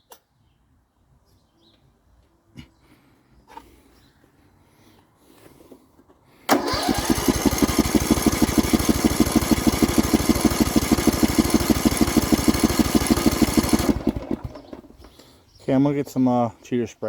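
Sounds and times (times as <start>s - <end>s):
mower engine cranking: 6.5s - 15.1s.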